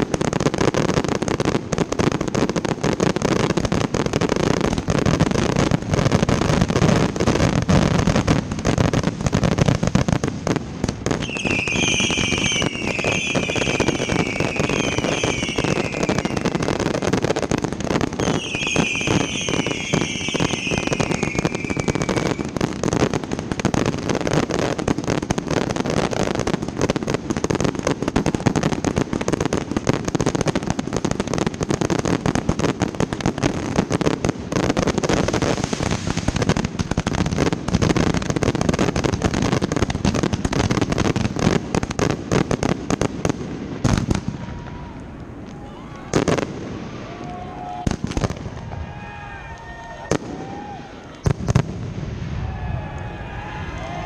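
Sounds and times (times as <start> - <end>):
fireworks bangs and crackle: 0.0 - 54.0
shrill falling whistles: 11.2 - 16.4, 18.2 - 22.4.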